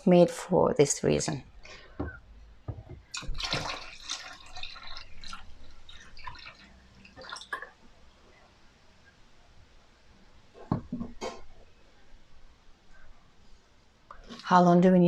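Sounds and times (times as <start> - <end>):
liquid pouring and splashing into water: 3.0 - 8.1, 14.2 - 14.5.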